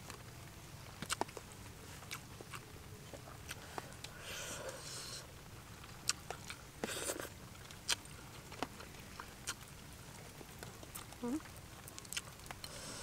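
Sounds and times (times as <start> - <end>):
person chewing: 2.0 - 2.6, 6.0 - 9.7, 10.8 - 13.0.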